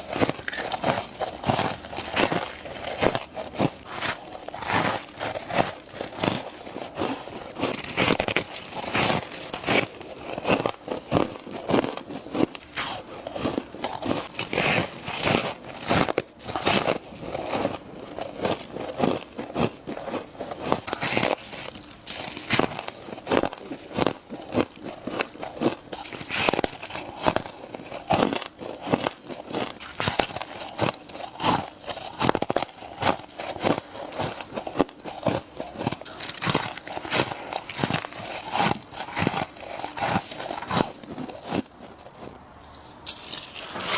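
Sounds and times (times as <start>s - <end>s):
crunching bites into frost: 0.0s - 42.3s, 43.0s - 43.9s.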